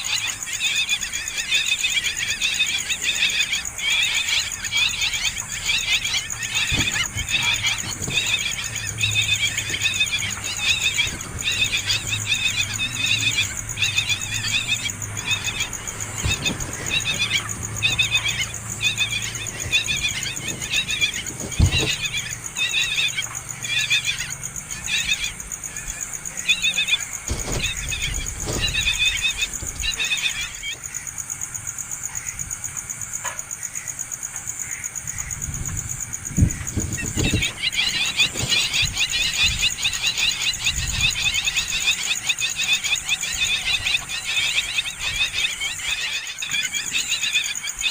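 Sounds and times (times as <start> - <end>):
nestling birds chirping: 0.0 - 47.9
dull knocks: 6.2 - 23.4, 27.1 - 30.6.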